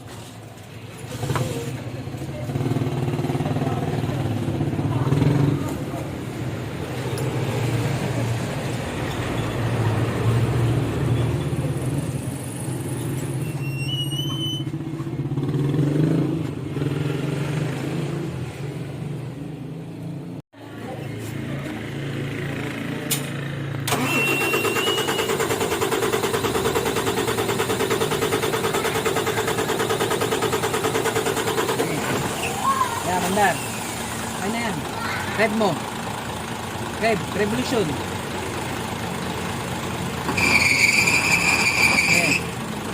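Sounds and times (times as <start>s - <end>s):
diesel truck engine idling: 23.8s - 42.9s.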